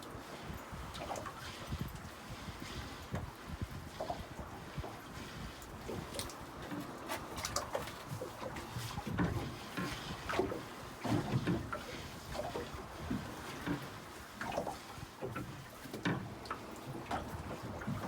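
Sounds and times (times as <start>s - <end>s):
water slapping against boat: 0.0s - 18.0s
knocks and clatter on board: 6.7s - 11.8s.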